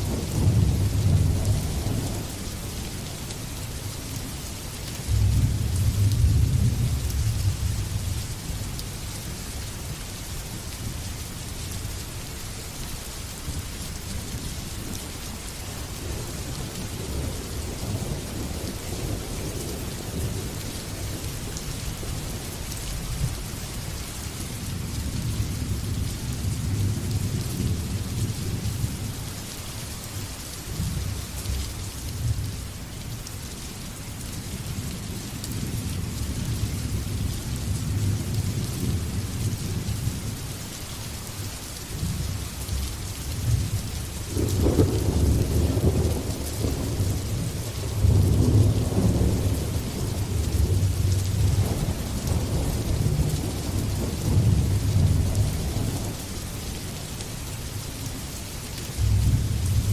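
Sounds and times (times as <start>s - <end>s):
heavy rain falling: 0.0s - 59.9s
rolling thunder rumbling: 44.3s - 56.2s, 59.0s - 59.9s.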